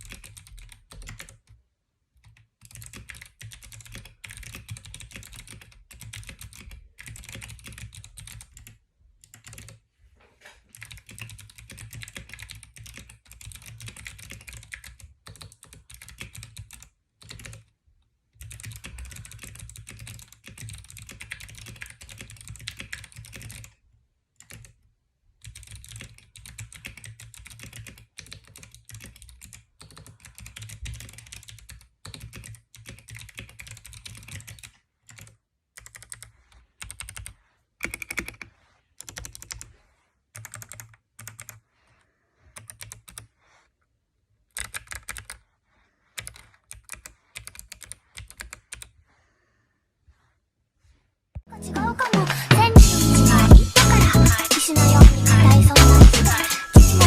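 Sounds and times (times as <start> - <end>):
mechanical keyboard typing: 0.0 - 1.6, 2.2 - 9.8, 10.7 - 17.7, 18.4 - 23.8, 24.4 - 24.8, 25.4 - 39.7, 40.4 - 41.6, 42.6 - 43.3, 44.5 - 45.4, 46.2 - 48.9.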